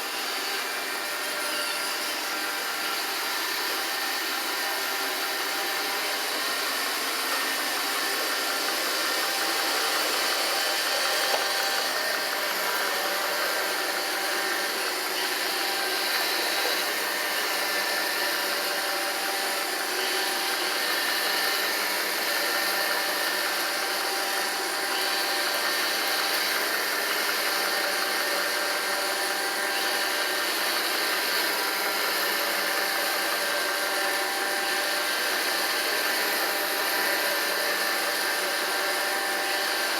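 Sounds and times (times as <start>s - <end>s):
robot vacuum cleaner whirring: 0.0s - 39.9s.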